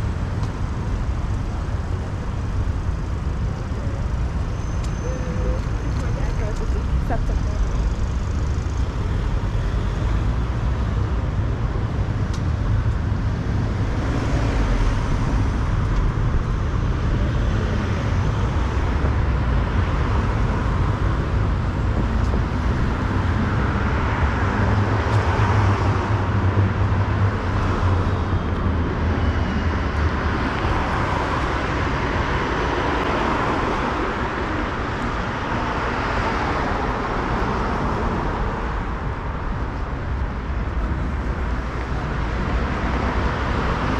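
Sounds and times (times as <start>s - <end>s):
traffic rumble: 0.0s - 43.9s.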